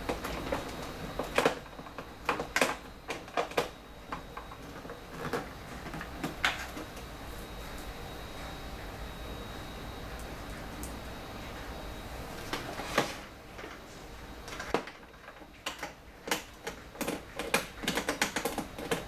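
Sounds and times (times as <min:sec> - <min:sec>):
scanner clicks and knocks: 0:14.5 - 0:19.0.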